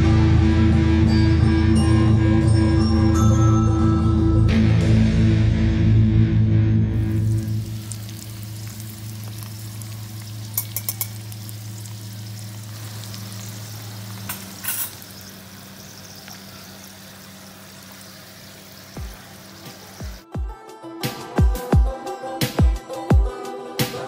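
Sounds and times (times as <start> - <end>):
food frying in hot oil: 7.0 - 20.3
spatula clicking against pan: 10.6 - 11.2.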